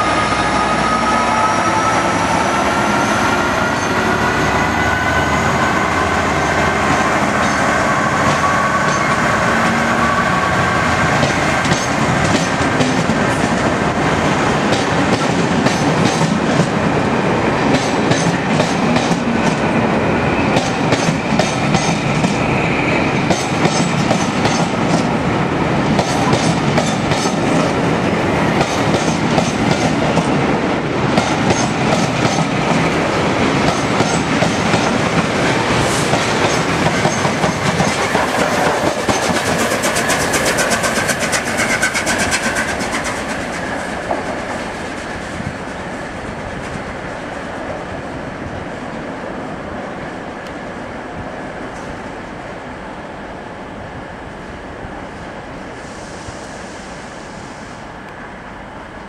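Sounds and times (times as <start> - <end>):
train rumbling past: 0.0 - 59.0.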